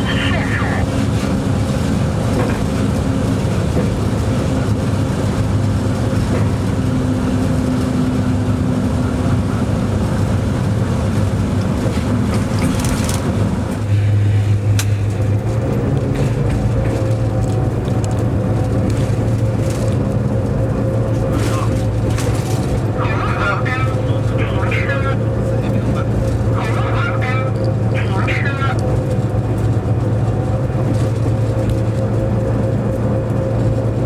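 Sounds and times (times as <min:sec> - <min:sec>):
locomotive engine drone: 0:00.0 - 0:34.0.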